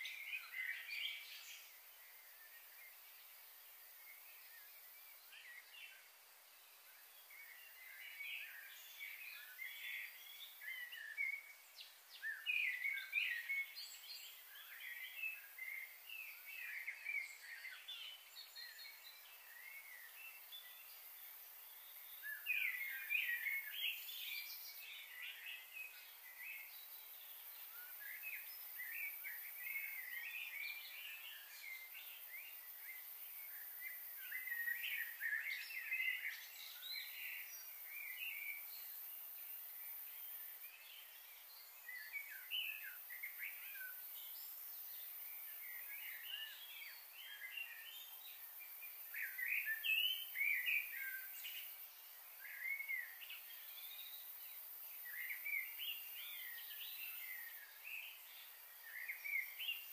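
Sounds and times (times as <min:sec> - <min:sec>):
many birds chirping: 0:00.0 - 0:59.9
steady high-pitched hiss: 0:00.0 - 0:59.9.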